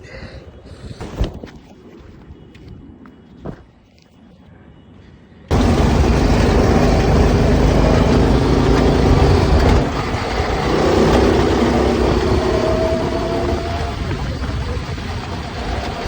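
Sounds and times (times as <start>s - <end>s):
go-kart engine running: 5.5s - 16.0s.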